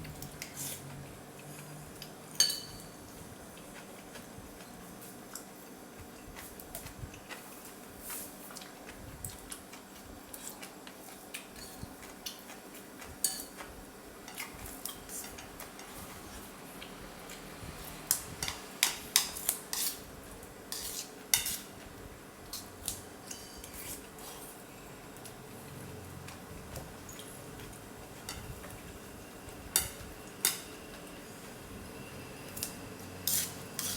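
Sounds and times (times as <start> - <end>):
utensils clinking against a bowl: 1.4 - 3.2, 11.4 - 12.6, 13.2 - 16.1, 22.5 - 24.5, 32.5 - 33.9.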